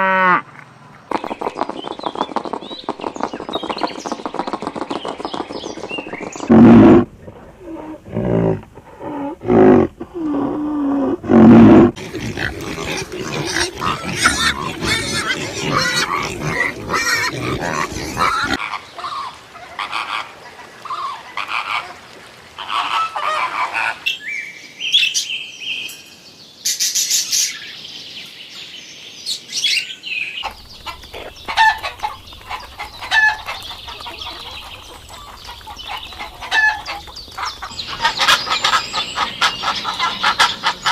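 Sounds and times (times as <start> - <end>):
animal calls and cries: 0.0 - 22.0, 30.4 - 40.9.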